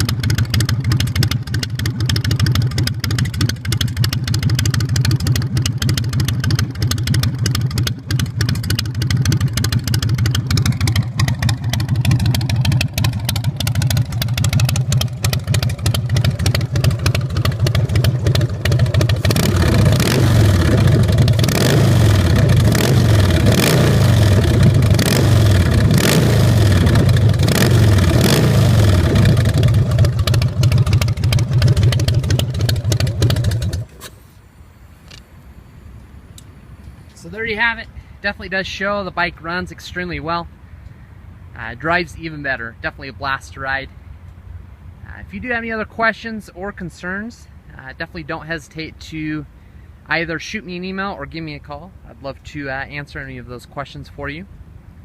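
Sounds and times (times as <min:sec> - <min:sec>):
motorcycle engine idling and revving: 0:00.0 - 0:42.4.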